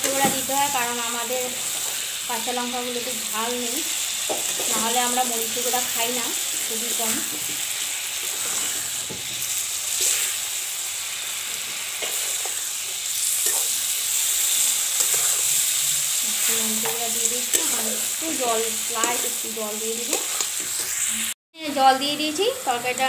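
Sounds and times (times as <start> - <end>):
vegetables sizzling in hot oil: 0.0 - 23.0
metal spatula scraping pan: 13.3 - 21.3.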